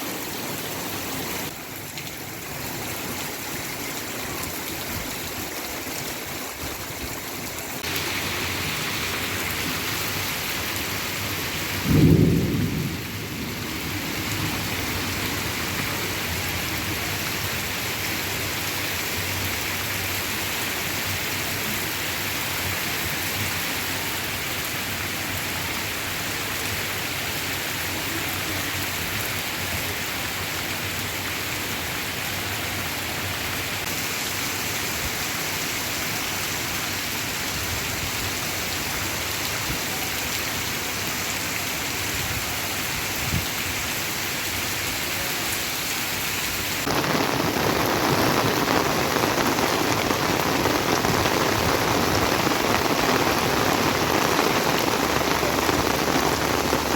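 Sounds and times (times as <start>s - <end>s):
heavy rain pouring: 0.0s - 56.9s
thunder clap: 11.8s - 15.1s, 46.8s - 56.9s.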